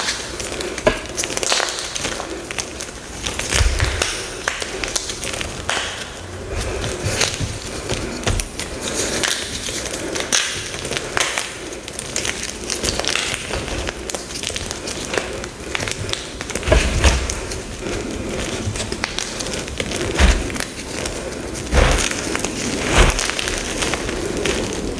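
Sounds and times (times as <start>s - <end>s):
chalk crackling and crunching: 0.0s - 24.9s
heavy thumps: 3.5s - 5.1s, 15.8s - 23.9s.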